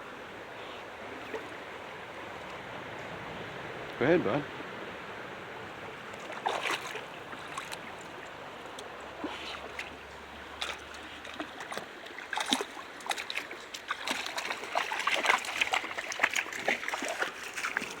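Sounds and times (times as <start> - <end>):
shallow brook running: 0.0 - 18.0
splashing in water: 6.0 - 18.0.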